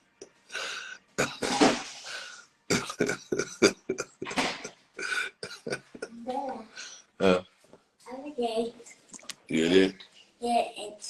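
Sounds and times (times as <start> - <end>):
person coughing and clearing throat: 1.2 - 1.9, 2.7 - 6.2.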